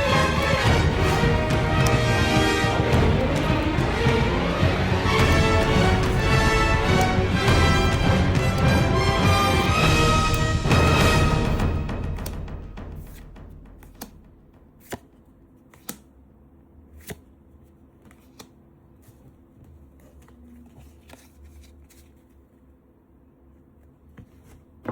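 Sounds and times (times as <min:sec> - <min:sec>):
music: 0:00.0 - 0:14.8
trading cards being handled: 0:14.8 - 0:16.1, 0:16.9 - 0:22.4.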